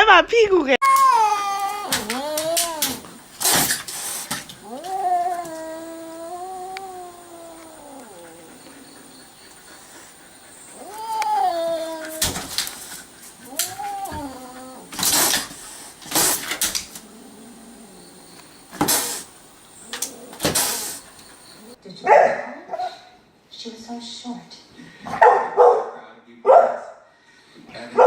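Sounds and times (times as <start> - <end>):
cat yowling: 0.8 - 9.6, 10.4 - 18.2.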